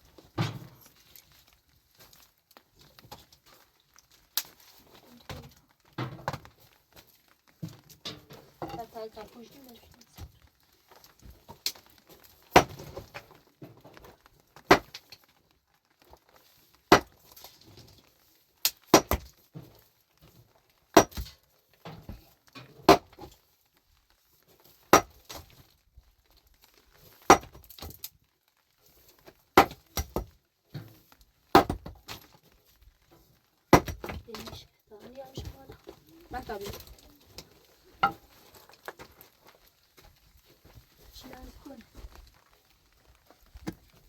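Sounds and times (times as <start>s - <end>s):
iron tool striking rock: 14.7s - 14.9s, 16.9s - 17.2s, 18.9s - 19.3s, 21.0s - 21.3s, 24.9s - 25.1s, 27.3s - 27.6s, 29.6s - 30.3s, 31.6s - 31.9s, 33.8s - 34.2s.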